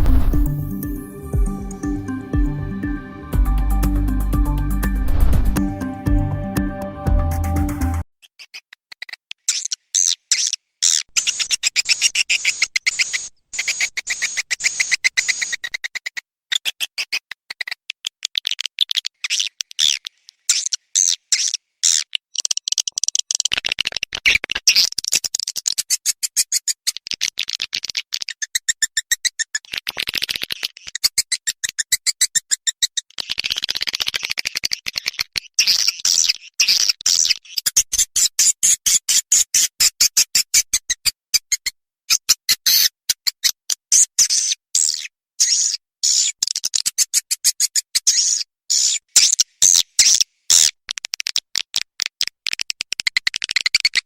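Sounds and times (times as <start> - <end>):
high twittering bird chirps: 9.5 - 15.8
rapid bird clicks: 11.2 - 16.2, 50.1 - 54.0.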